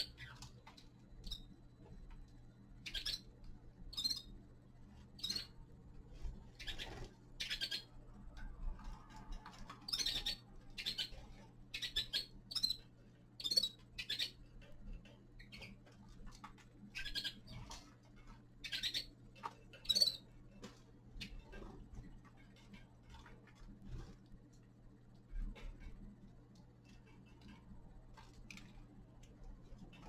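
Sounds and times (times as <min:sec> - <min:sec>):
finches chirping: 0:00.0 - 0:01.6, 0:02.7 - 0:04.4, 0:05.1 - 0:05.6, 0:06.5 - 0:08.0, 0:09.8 - 0:14.5, 0:15.3 - 0:15.9, 0:16.9 - 0:17.8, 0:18.5 - 0:20.4
low electrical hum: 0:00.0 - 0:30.0.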